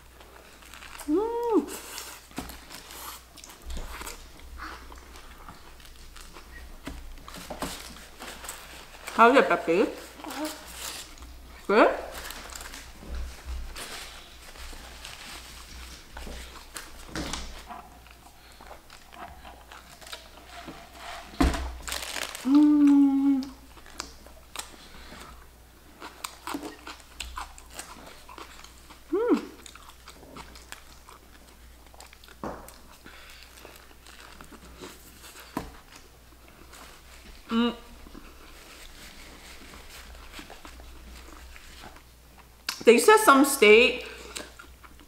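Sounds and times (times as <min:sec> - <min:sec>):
person chewing and crunching: 0:00.0 - 0:09.1, 0:10.0 - 0:42.8, 0:44.1 - 0:45.0
person humming: 0:01.1 - 0:01.8, 0:22.4 - 0:23.6, 0:29.1 - 0:29.6, 0:37.5 - 0:37.9.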